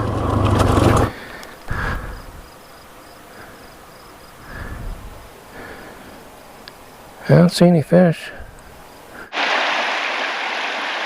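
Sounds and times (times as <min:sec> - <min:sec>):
motorcycle engine idling: 0:00.0 - 0:01.3.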